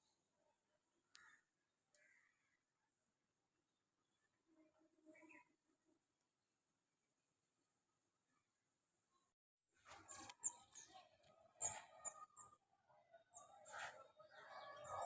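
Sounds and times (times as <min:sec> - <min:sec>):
small birds chirping: 0:01.0 - 0:02.7, 0:05.0 - 0:05.6, 0:09.8 - 0:15.0.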